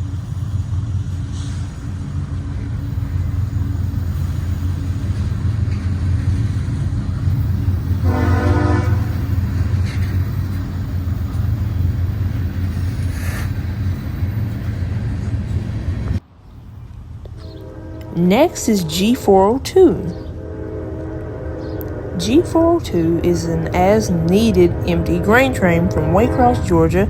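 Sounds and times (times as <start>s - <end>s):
diesel train rumbling: 0.0s - 27.0s
train horn blast: 7.9s - 10.1s, 17.4s - 27.0s.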